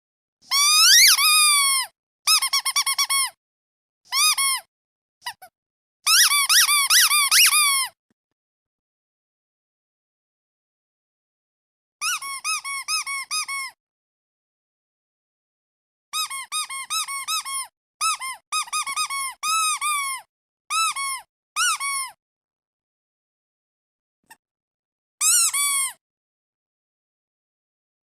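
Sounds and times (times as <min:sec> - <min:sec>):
squeaky duck toy squeaking: 0:00.4 - 0:03.4, 0:04.1 - 0:05.5, 0:06.1 - 0:08.0, 0:12.0 - 0:13.8, 0:16.2 - 0:22.2, 0:25.2 - 0:26.0.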